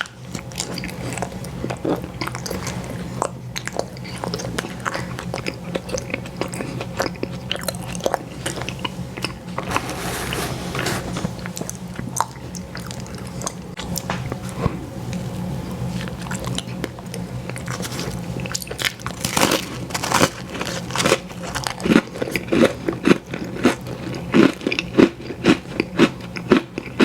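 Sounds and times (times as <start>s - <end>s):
ice cream crunching and chewing: 0.0s - 9.8s, 11.2s - 27.0s
steady low hum: 0.0s - 20.6s.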